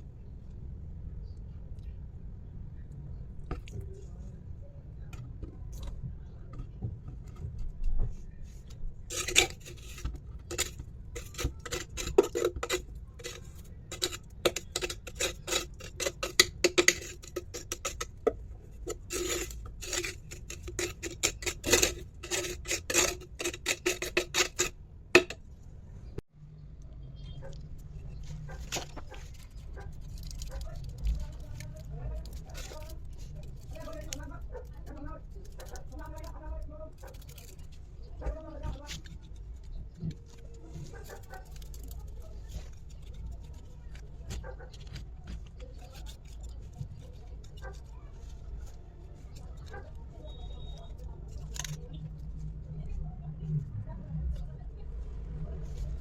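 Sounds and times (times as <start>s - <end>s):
small hard objects clicking and clinking: 9.1s - 25.4s, 28.7s - 37.8s.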